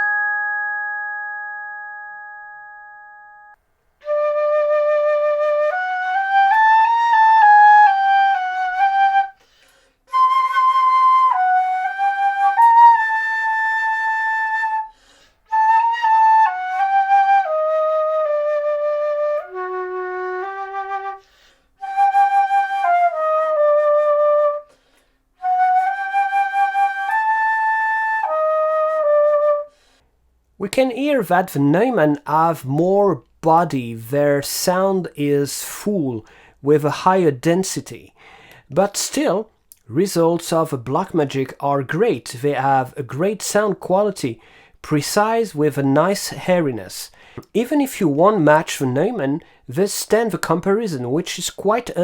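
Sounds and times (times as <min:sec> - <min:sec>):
glockenspiel note ringing: 0:00.0 - 0:03.6
flute playing slow melody: 0:00.0 - 0:09.5, 0:10.1 - 0:30.0.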